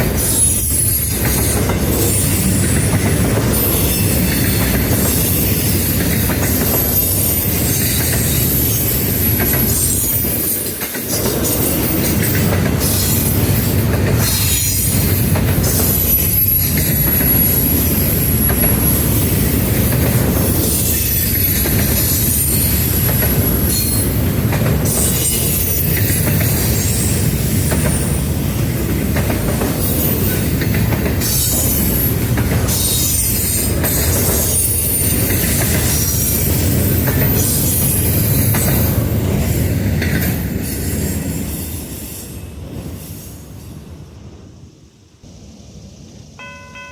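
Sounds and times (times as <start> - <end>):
railroad cars rumbling: 0.0 - 46.9
wheel squeals: 0.1 - 24.2.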